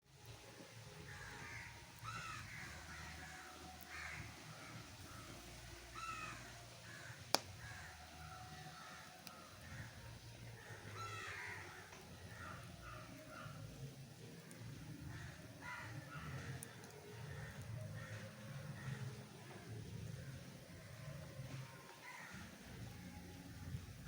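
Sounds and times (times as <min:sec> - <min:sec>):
crows cawing: 0:00.9 - 0:23.0
sharp crack: 0:07.0 - 0:07.9.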